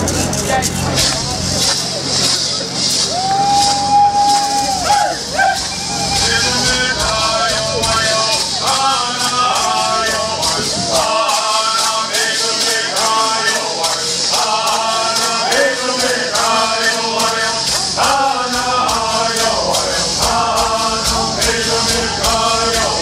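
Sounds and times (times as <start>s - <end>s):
gourd rattles shaking: 0.0s - 23.0s
men singing in unison: 4.9s - 23.0s.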